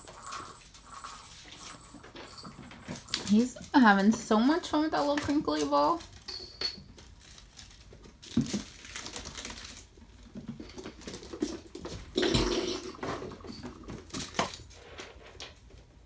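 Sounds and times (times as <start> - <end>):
crinkle ball rustling: 0.0 - 12.2.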